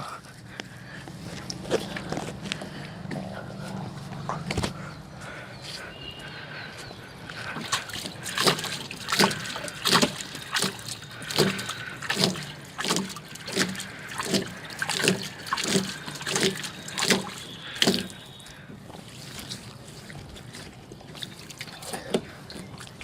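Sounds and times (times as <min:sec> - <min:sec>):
water swishing and sloshing: 0:07.0 - 0:23.0
wet scrubbing on glass: 0:07.4 - 0:23.0.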